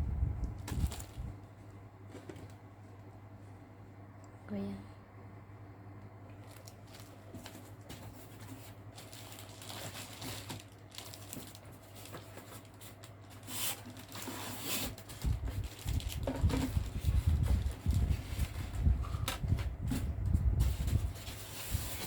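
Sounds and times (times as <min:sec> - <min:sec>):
packaging clicks and crinkles: 0:00.5 - 0:01.3, 0:06.3 - 0:19.4.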